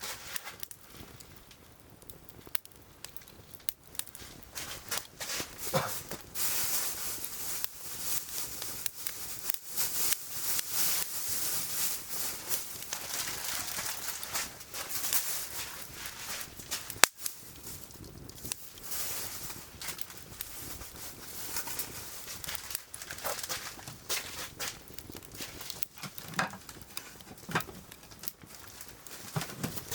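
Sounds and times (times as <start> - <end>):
firewood crackling and hissing: 0.0 - 29.9
loud pop from fire: 2.0 - 22.5.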